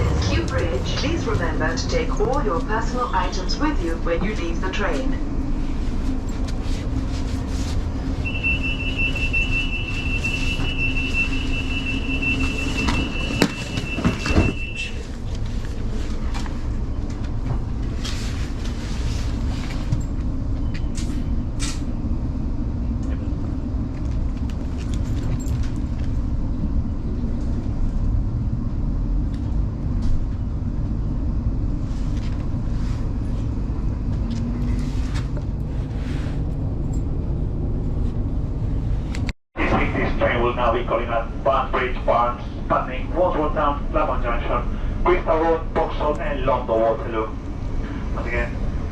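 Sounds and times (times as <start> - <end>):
train rumbling: 0.0 - 48.9
high warning tone: 8.2 - 15.0
train doors closing with knocks: 12.4 - 14.9
train clicks and rattles: 23.8 - 26.4.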